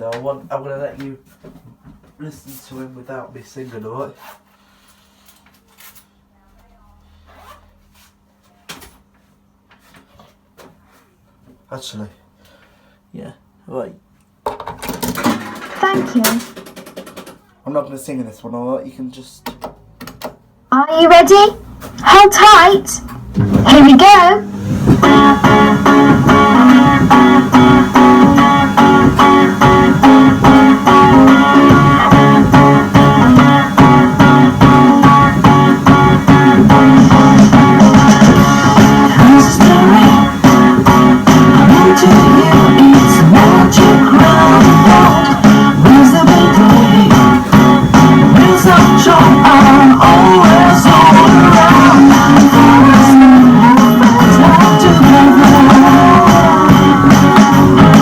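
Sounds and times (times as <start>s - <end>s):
kiddie ride song over loudspeaker: 21.0s - 23.0s, 25.0s - 58.0s.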